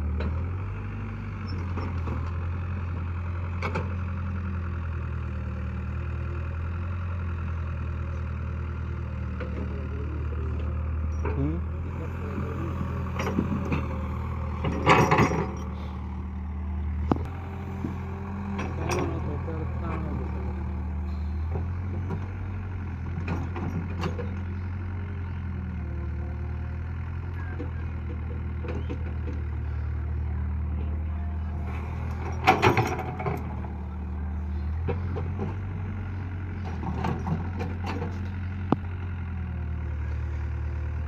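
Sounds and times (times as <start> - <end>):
diesel engine running: 0.0 - 41.0
metal clanks: 12.3 - 15.9, 31.7 - 33.8.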